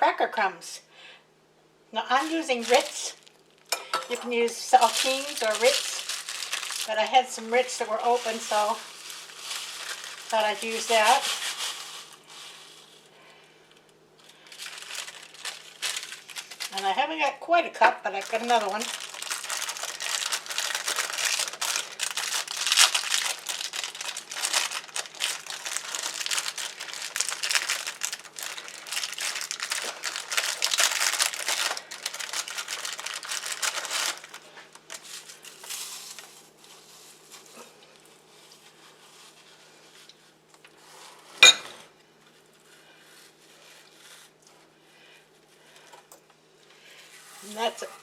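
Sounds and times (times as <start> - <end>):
crackers being crushed by hand: 2.2 - 16.9, 18.1 - 39.4.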